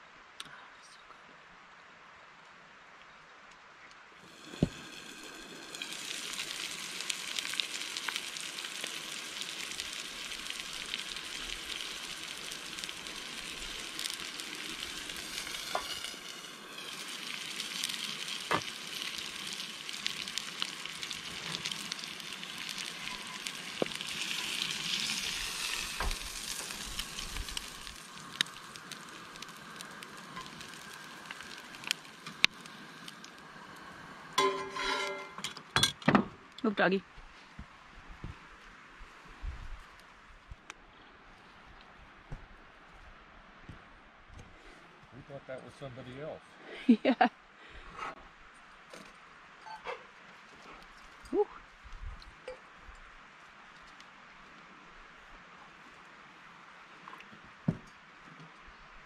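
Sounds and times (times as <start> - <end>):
food sizzling in a skillet: 4.2 - 35.5.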